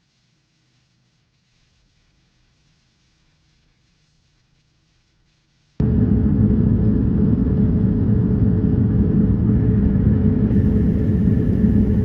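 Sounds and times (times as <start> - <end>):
car engine rumble: 10.5 - 12.0.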